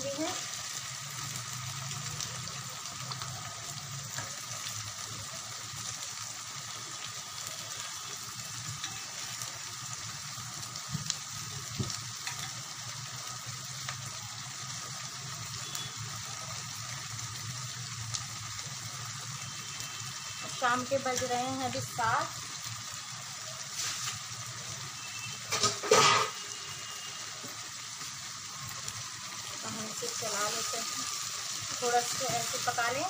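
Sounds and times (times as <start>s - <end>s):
vegetables sizzling in oil: 0.0s - 33.0s.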